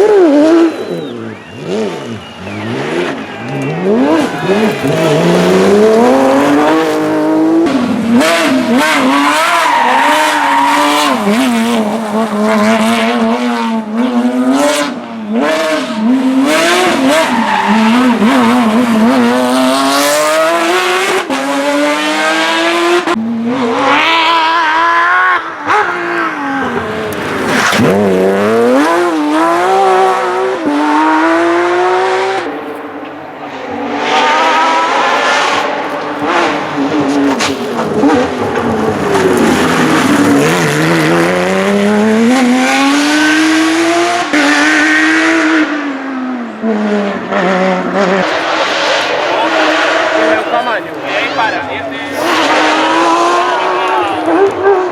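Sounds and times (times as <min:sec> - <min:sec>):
rally car engine revving: 0:00.0 - 0:54.9.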